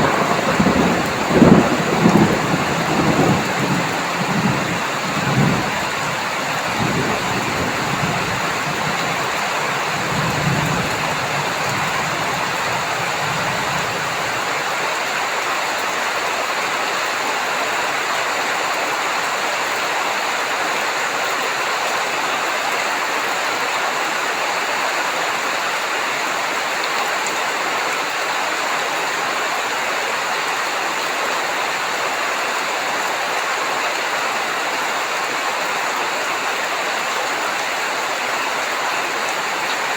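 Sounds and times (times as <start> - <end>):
thunder rumble: 0.0 - 14.5
heavy rain: 0.0 - 39.9.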